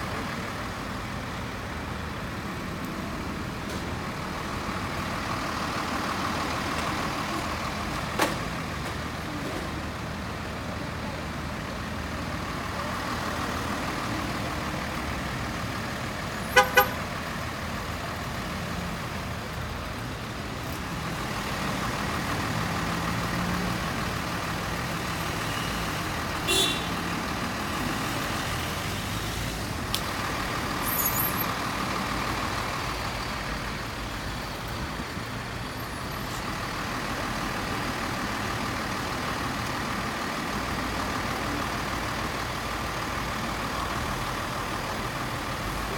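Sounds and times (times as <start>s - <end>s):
street traffic noise: 0.0s - 45.9s
vehicle horn toots: 16.5s - 17.0s, 26.4s - 27.0s.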